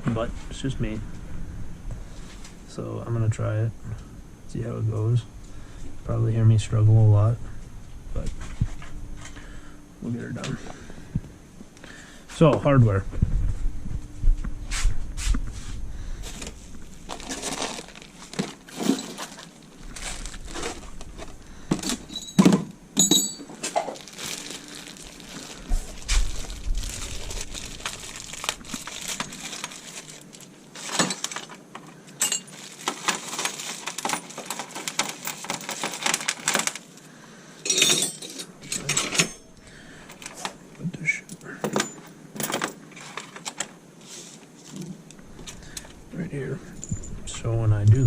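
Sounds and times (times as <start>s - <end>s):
rustling: 13.2s - 22.3s, 23.5s - 36.9s
metal hardware clinking: 21.8s - 23.8s, 37.7s - 39.6s.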